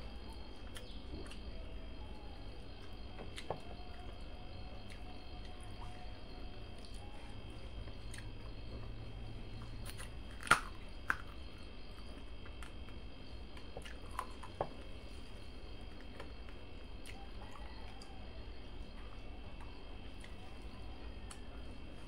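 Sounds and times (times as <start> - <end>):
person chewing food: 6.7 - 8.8, 9.6 - 18.1
sharp clicks and smacks: 9.8 - 11.4.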